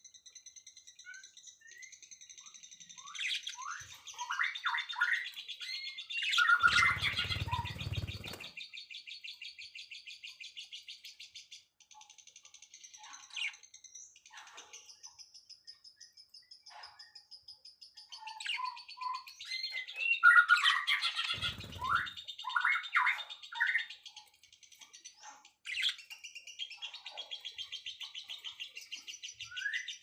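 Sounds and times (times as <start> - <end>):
small birds chirping: 0.0 - 30.0
fast high bird trill: 6.4 - 8.5, 21.0 - 23.0.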